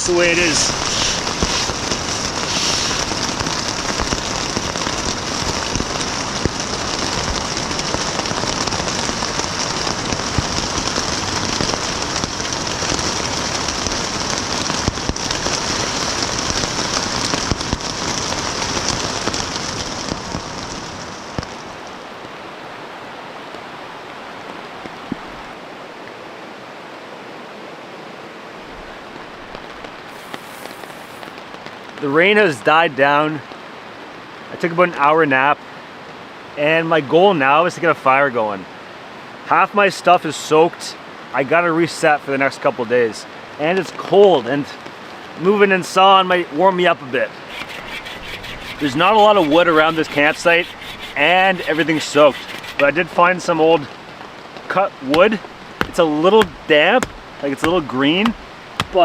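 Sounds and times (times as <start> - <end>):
heavy rain falling: 0.0 - 26.1, 28.6 - 34.5, 47.3 - 59.0.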